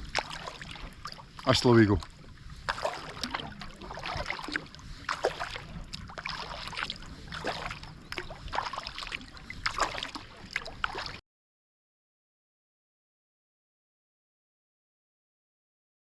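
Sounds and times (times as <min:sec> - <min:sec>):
water splashing around kayak: 0:00.0 - 0:11.2.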